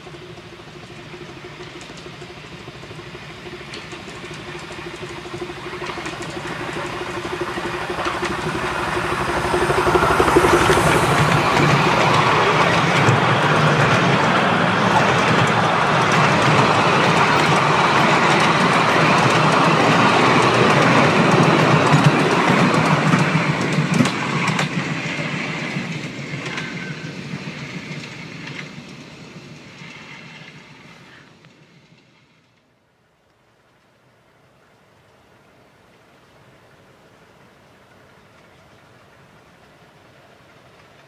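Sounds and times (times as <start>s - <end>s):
train wheels rattling: 0.0s - 31.2s
wheels clicking over rail joints: 0.0s - 32.7s.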